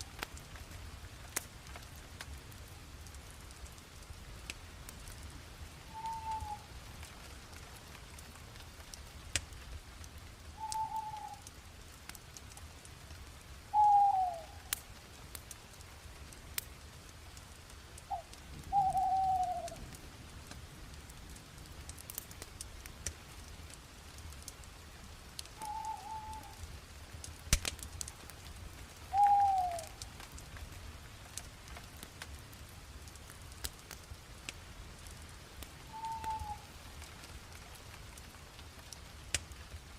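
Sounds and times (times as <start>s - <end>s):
wood fire crackling and popping: 0.0s - 39.9s
bird calling falling note: 5.9s - 6.6s, 18.1s - 19.7s, 29.1s - 29.9s, 35.9s - 36.6s.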